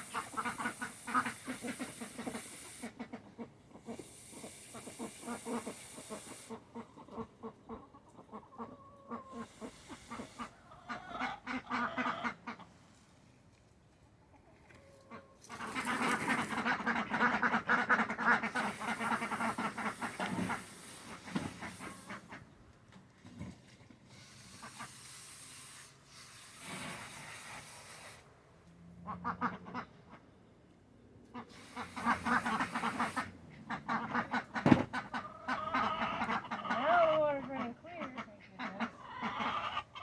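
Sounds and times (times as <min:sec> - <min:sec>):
running water hiss: 0:00.0 - 0:03.0, 0:04.0 - 0:06.6, 0:18.4 - 0:22.3, 0:24.1 - 0:28.3, 0:31.5 - 0:33.4
ducks quacking: 0:00.0 - 0:12.8, 0:15.0 - 0:22.6, 0:29.1 - 0:30.4, 0:31.3 - 0:40.0.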